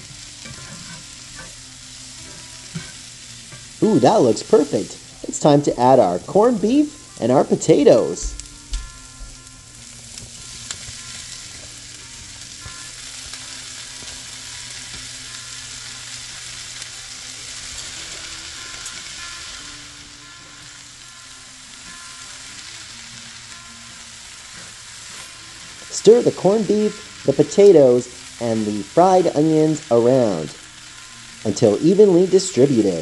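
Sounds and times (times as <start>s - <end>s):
food sizzling in a skillet: 0.0s - 33.0s
spatula stirring: 0.4s - 1.6s.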